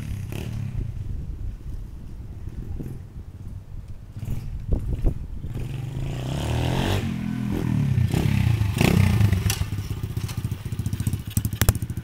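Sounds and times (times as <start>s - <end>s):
motorbike engine revving and idling: 0.0s - 1.0s, 4.2s - 12.0s.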